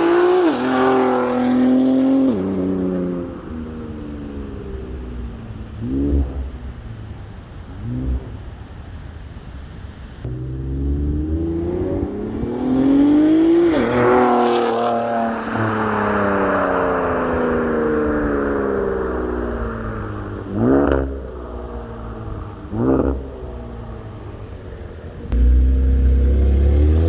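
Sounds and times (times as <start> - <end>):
car engine revving: 0.0 - 4.6, 10.3 - 17.0, 25.3 - 27.0.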